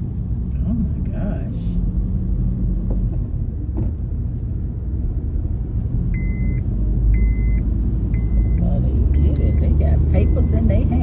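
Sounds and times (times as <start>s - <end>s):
car road noise rumble: 0.0s - 11.0s
high electronic beep: 6.2s - 6.6s.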